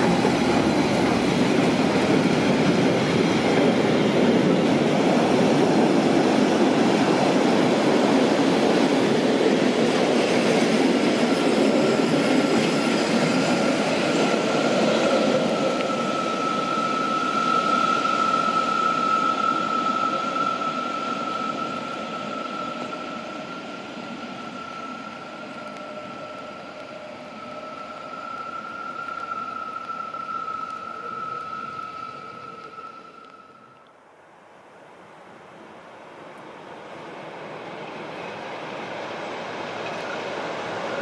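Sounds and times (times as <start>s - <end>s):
train coaches rolling on rails: 0.0s - 33.8s, 36.2s - 41.0s
high-pitched wheel squeal: 11.8s - 33.8s.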